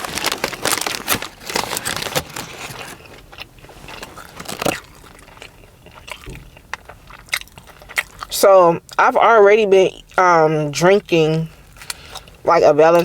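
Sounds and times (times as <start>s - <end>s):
chewing crunchy food: 0.0s - 9.0s, 11.5s - 12.4s.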